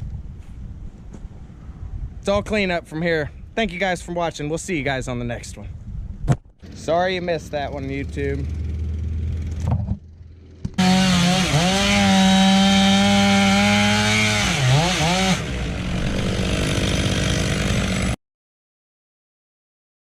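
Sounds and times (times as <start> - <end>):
chainsaw cutting wood: 10.6 - 18.2.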